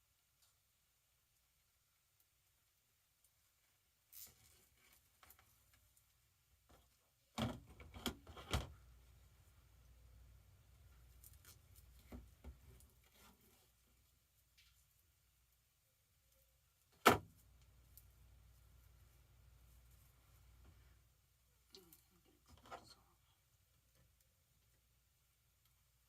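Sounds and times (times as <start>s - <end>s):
soft mesh rustles: 3.2s - 6.2s.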